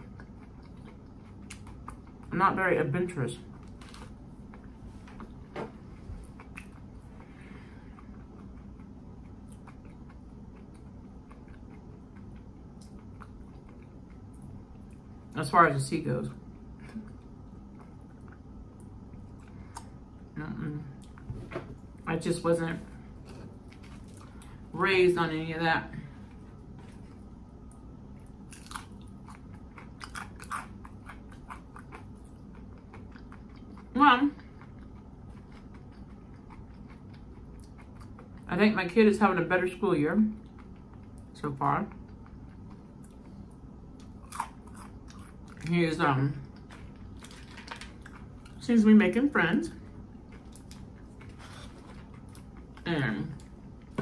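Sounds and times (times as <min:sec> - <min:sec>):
person chewing food: 0:00.0 - 0:02.3, 0:03.5 - 0:15.4, 0:16.4 - 0:20.3, 0:23.0 - 0:24.7, 0:26.2 - 0:38.5, 0:40.4 - 0:41.3, 0:41.9 - 0:45.7, 0:46.4 - 0:48.6, 0:49.8 - 0:52.8
low hum: 0:00.0 - 0:54.0.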